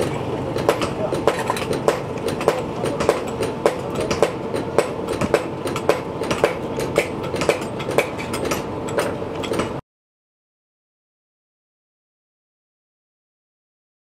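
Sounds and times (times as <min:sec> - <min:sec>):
machine humming: 0:00.0 - 0:09.8.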